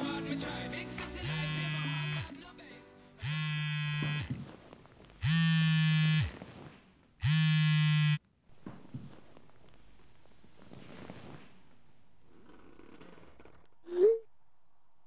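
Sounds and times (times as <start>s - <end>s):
phone vibrating on wooden table: 1.3s - 2.3s, 3.2s - 4.5s, 5.2s - 6.4s, 7.2s - 8.2s.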